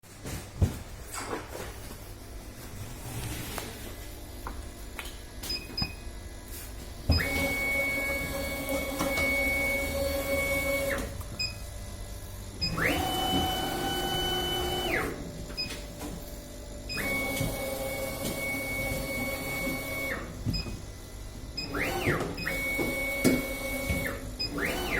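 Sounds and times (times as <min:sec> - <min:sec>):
stepper motor whine: 0:07.1 - 0:15.3, 0:16.8 - 0:20.3.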